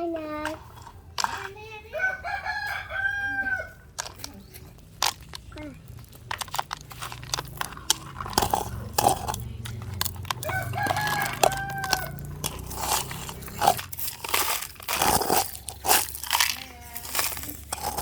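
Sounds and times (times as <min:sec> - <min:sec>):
rooster crowing: 0:01.9 - 0:03.9, 0:10.4 - 0:13.4
short clicks and crunches: 0:03.9 - 0:18.0.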